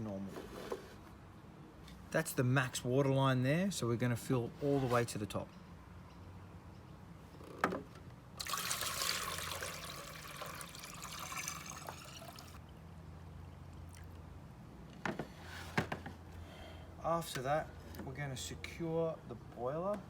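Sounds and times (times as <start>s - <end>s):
water pouring into reservoir: 8.4s - 12.6s.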